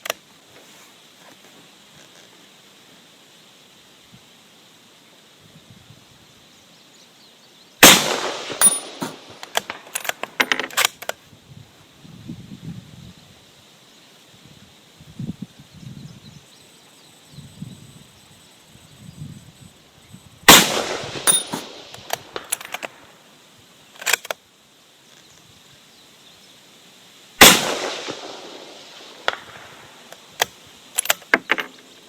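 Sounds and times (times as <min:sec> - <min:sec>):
rifle shots with echo: 0:07.8 - 0:10.5, 0:20.5 - 0:23.0, 0:27.4 - 0:29.9
rifle bolt clicks: 0:08.5 - 0:11.2, 0:21.2 - 0:23.0, 0:24.0 - 0:24.4, 0:30.1 - 0:31.8
wind buffeting microphone: 0:11.4 - 0:13.2.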